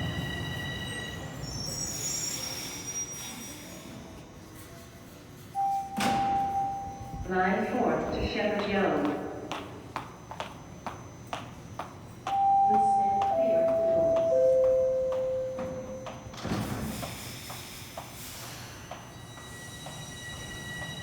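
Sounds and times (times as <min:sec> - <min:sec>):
train doors closing hiss: 0:05.5 - 0:06.8, 0:15.6 - 0:21.0
train door chime: 0:05.6 - 0:07.3, 0:12.3 - 0:16.8.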